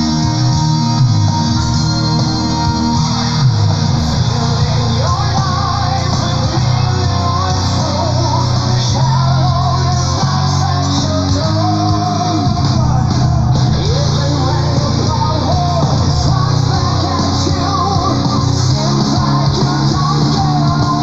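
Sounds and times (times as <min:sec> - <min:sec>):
progressive metal song: 0:00.0 - 0:21.0.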